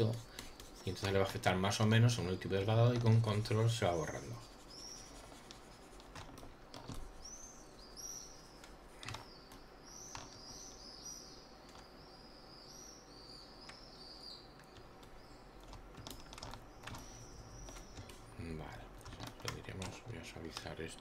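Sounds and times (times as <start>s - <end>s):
faint bird chirping: 0.0s - 21.0s
soft clicks: 11.6s - 12.0s.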